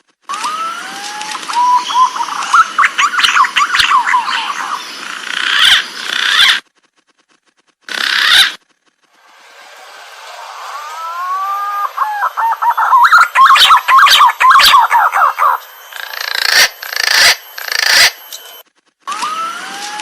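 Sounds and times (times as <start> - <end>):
pigeons calling with whistled notes: 0.4 - 5.0, 11.2 - 18.2.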